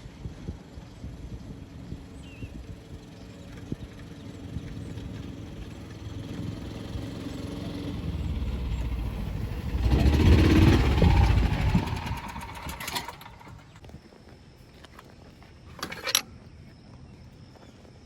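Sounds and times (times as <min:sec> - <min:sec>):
motor vehicle engine running: 0:00.1 - 0:13.9.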